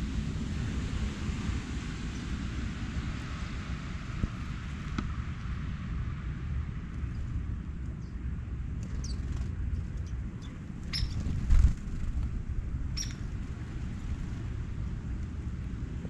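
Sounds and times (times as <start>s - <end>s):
steady low rumble: 0.0s - 16.0s
songbird chirps: 8.8s - 11.4s, 13.0s - 13.3s.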